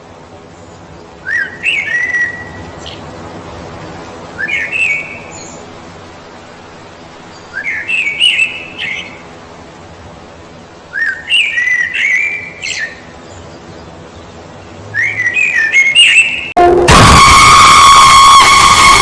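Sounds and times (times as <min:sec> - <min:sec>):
songbird singing: 0:00.5 - 0:09.4, 0:10.9 - 0:16.6.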